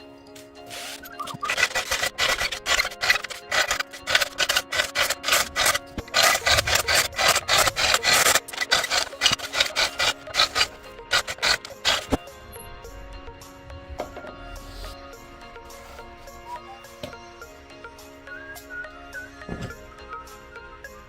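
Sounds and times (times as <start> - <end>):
hand tool rasping wood: 0.6 - 12.2.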